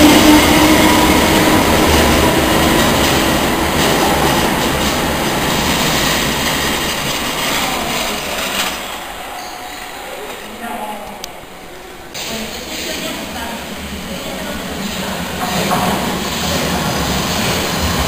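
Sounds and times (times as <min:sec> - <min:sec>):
underground train running: 0:00.0 - 0:18.0
wheels clicking on rails: 0:01.4 - 0:10.6.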